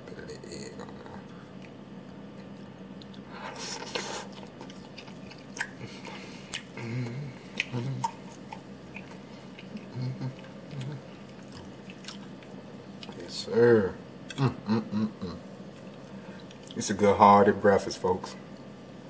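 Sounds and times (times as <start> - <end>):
closed-mouth hums: 0.0 - 12.4, 14.2 - 16.7
man chewing: 0.3 - 13.2, 15.2 - 16.8
wet mouth smacks: 4.4 - 5.9, 6.5 - 9.9.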